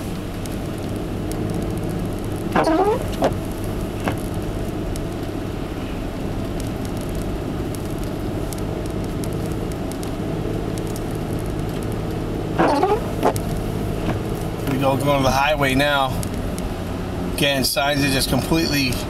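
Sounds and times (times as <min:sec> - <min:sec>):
car engine hum: 0:00.0 - 0:19.0
tyre noise: 0:02.2 - 0:04.4
faint ticks: 0:06.4 - 0:15.0.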